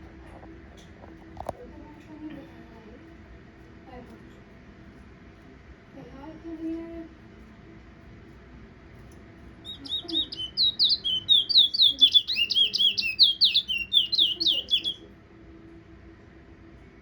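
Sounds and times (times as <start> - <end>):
finch singing whistled notes: 9.6 - 15.0.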